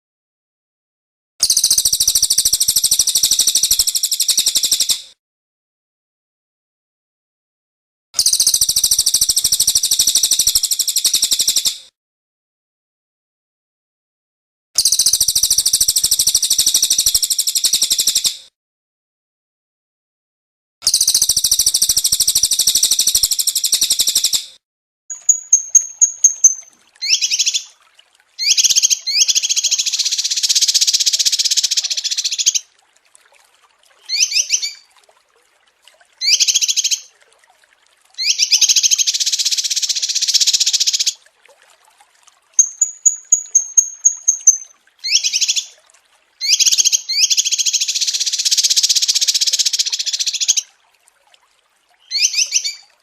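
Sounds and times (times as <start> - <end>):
short down-slurred bird chirps: 25.1 - 27.7, 34.1 - 34.8, 42.6 - 45.7, 52.0 - 52.8
thin very high bird trills: 25.1 - 27.7, 28.4 - 32.6, 34.1 - 34.9, 42.6 - 45.8, 52.0 - 52.9
songbird buzzy trills: 25.1 - 33.1, 34.0 - 34.9, 36.2 - 37.1, 42.6 - 45.8, 52.0 - 53.0.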